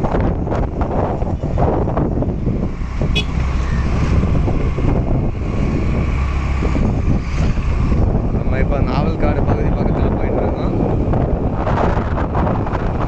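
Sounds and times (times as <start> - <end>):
motorbike engine rumble: 0.0 - 13.0
wind buffeting microphone: 0.0 - 13.0
brief high tone: 3.2 - 3.4.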